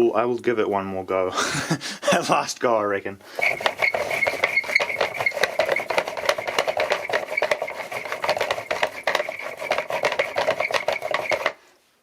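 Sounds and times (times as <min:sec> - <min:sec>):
hand-cranked generator rattling: 0:03.3 - 0:11.6.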